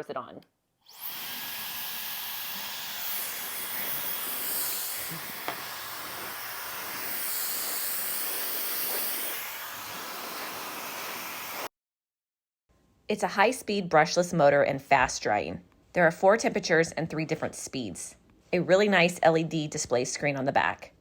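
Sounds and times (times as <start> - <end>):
hair dryer blowing air: 0.9 - 11.7.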